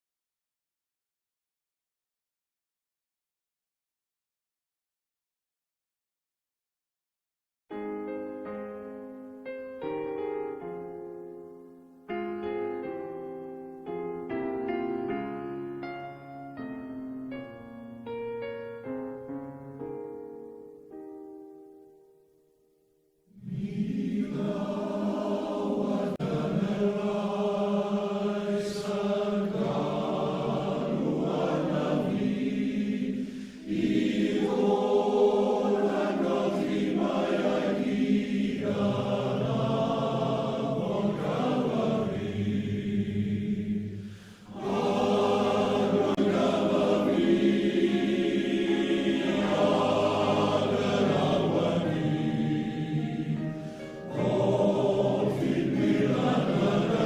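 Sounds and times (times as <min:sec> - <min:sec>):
male voice choir singing: 0:23.4 - 0:57.0.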